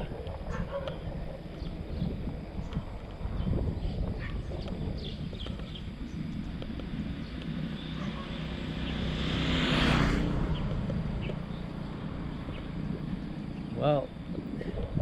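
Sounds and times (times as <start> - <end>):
low engine hum: 0.0 - 15.0
vehicle passing close by: 7.0 - 13.3.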